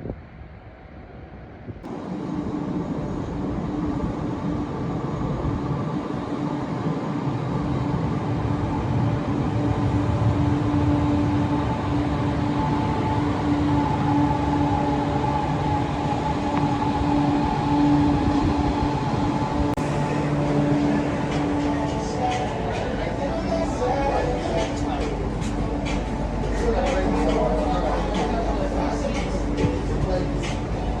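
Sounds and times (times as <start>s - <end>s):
electric train rumbling with whine: 0.0s - 31.0s.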